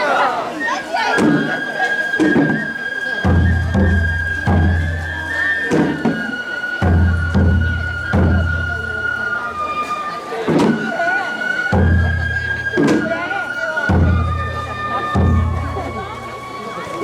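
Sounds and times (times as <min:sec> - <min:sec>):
bamboo flute long note: 0:00.2 - 0:17.0
taiko drum strikes: 0:01.2 - 0:01.6, 0:02.2 - 0:08.8, 0:10.5 - 0:11.0, 0:11.7 - 0:13.3, 0:13.9 - 0:16.1.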